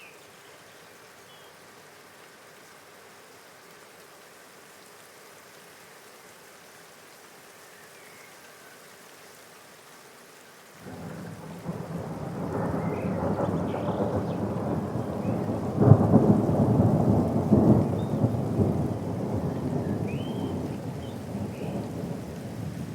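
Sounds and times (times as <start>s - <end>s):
rain hissing: 0.0s - 22.9s
thunder rumbling: 10.8s - 22.9s.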